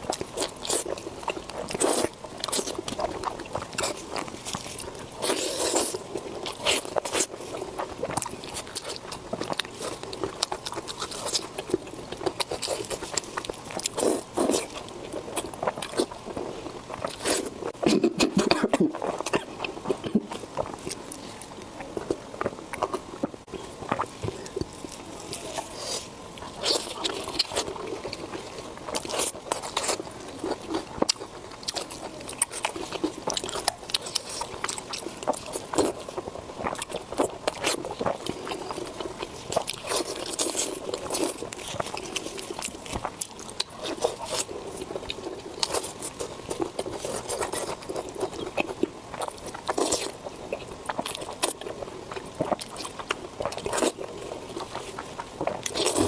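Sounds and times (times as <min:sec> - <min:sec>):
person chewing food: 0:00.0 - 0:56.0
wet mouth sounds: 0:15.4 - 0:28.3.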